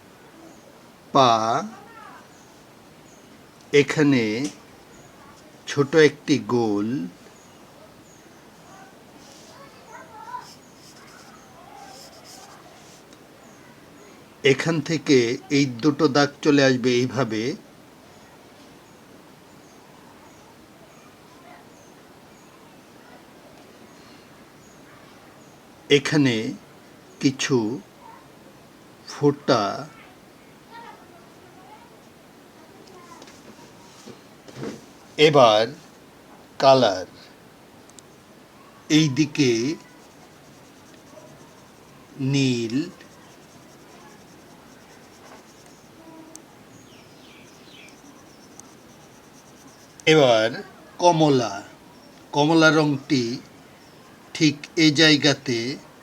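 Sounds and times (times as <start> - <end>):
faint background noise: 0.0 - 56.0
fast high ticking: 38.9 - 51.3
bird chirps: 39.0 - 54.2.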